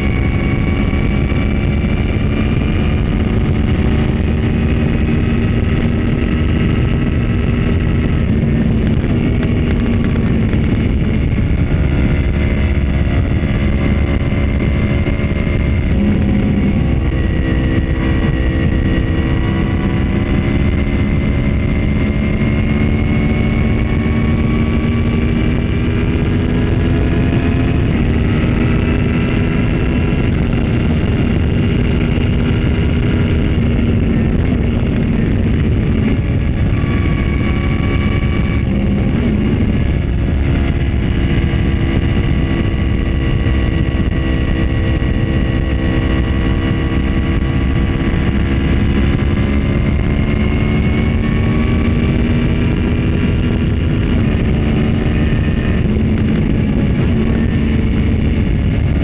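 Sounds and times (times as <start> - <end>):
motorcycle engine running: 0.0 - 59.0
wind rushing: 0.0 - 59.0.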